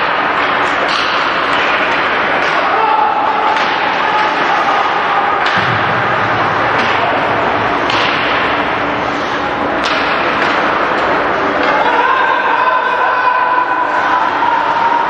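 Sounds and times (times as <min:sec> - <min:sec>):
sharp knocks on rink boards: 0:00.0 - 0:08.8, 0:09.7 - 0:11.9
crowd noise: 0:00.0 - 0:15.0.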